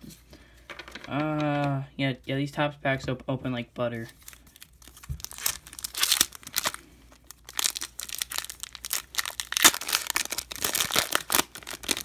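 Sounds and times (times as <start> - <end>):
wrapper crinkling and tearing: 4.2 - 12.0.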